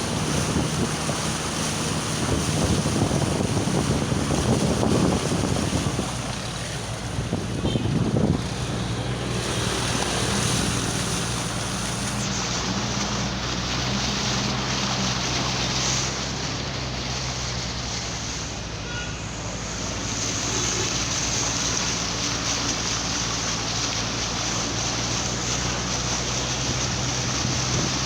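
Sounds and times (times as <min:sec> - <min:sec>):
wind buffeting microphone: 0:00.0 - 0:18.6, 0:21.3 - 0:28.0
rushing floodwater: 0:00.0 - 0:28.0.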